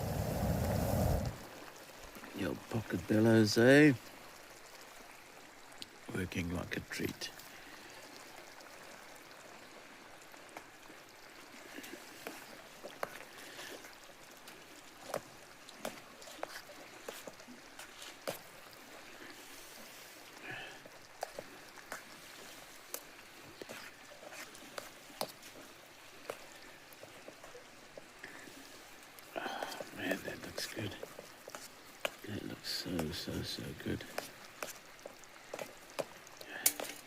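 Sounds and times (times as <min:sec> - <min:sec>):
campfire crackling and popping: 0:00.0 - 0:02.3, 0:20.4 - 0:37.0.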